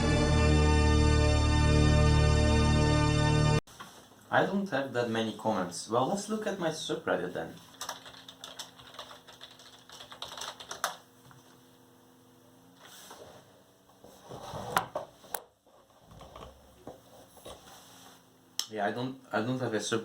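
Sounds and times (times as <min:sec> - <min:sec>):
computer keyboard typing and clicking: 0:07.7 - 0:11.0.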